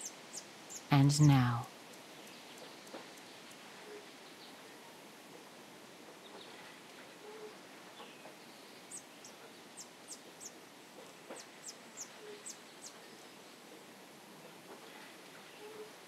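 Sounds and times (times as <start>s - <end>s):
soft background: 0.9s - 1.7s.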